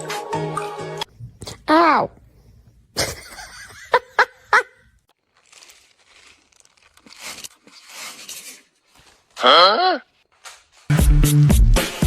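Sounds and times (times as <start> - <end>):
rustling and crinkling: 5.0 - 9.4, 10.1 - 10.9.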